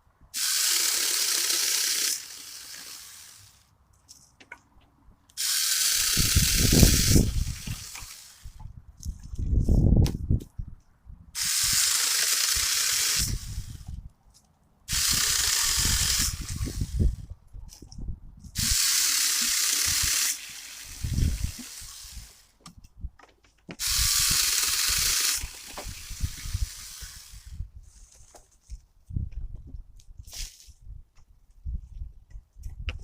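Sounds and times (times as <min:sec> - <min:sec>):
mini chainsaw cutting branches: 0:00.4 - 0:03.6, 0:05.4 - 0:08.6, 0:11.4 - 0:14.0, 0:14.9 - 0:17.3, 0:18.6 - 0:22.6, 0:23.8 - 0:27.7.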